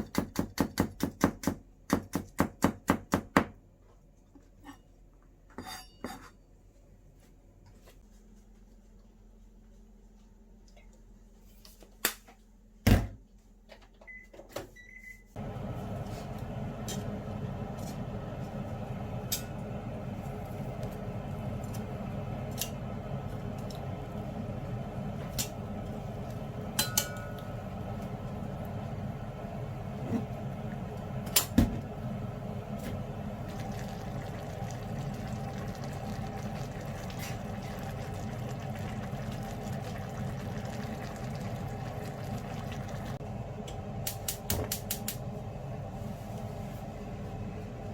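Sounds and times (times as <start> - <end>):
microwave running hum: 13.9 - 47.9.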